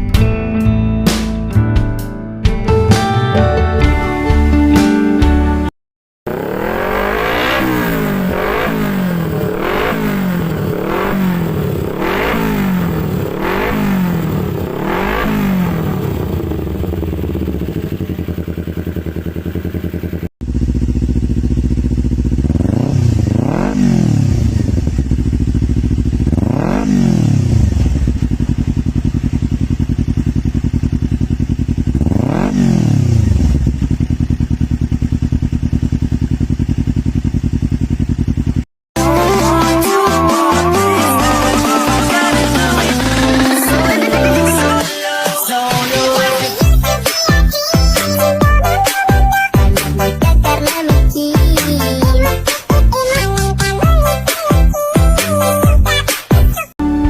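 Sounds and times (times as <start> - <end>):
motorcycle engine idling: 6.3 - 38.7
motorcycle engine revving: 6.3 - 54.4.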